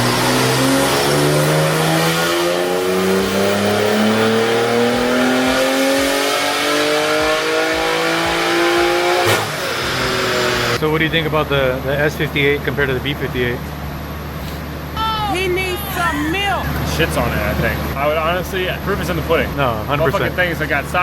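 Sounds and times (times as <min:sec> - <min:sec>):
car engine revving on dyno: 0:00.0 - 0:10.8.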